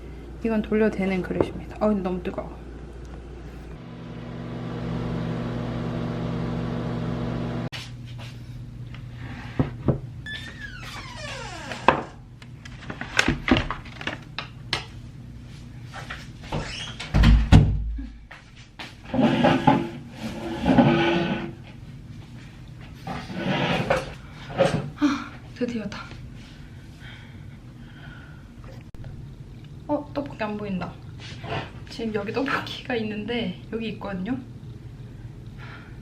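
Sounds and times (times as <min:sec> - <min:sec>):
microwave oven humming: 0:00.0 - 0:07.7, 0:32.2 - 0:36.0.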